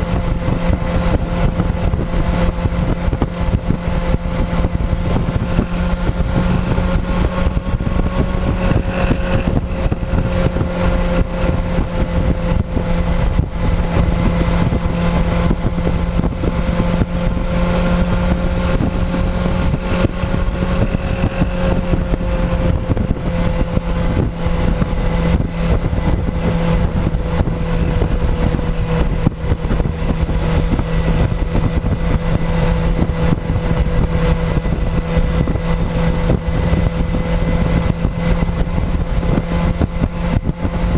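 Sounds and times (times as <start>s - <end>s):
motorcycle engine cruising: 0.0s - 40.9s
steady rushing noise: 0.0s - 40.9s.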